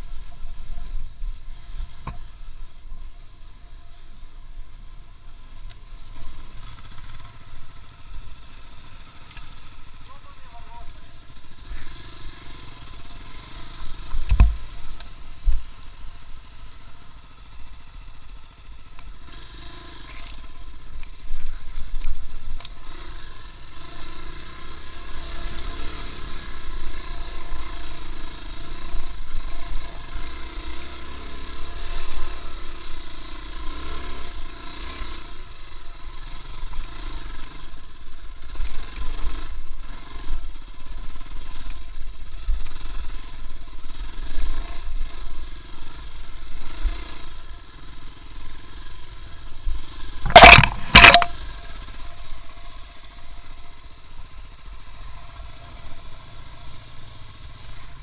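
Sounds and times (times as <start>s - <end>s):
vehicle rumble: 0.0s - 58.0s
sharp knock: 50.2s - 51.3s.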